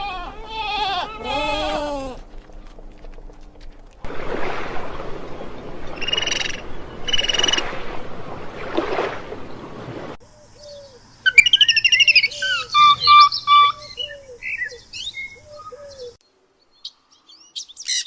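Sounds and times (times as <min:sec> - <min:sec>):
steady rushing noise: 0:04.0 - 0:10.2
warbling birdsong: 0:04.1 - 0:18.0
short low bird calls: 0:05.0 - 0:09.8
short bird calls: 0:05.2 - 0:08.2.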